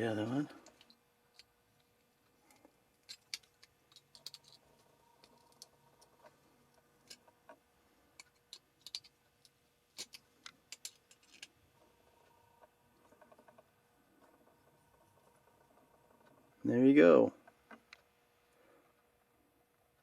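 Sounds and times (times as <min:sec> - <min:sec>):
wire clicking with pliers: 0:00.6 - 0:05.8, 0:06.7 - 0:11.6.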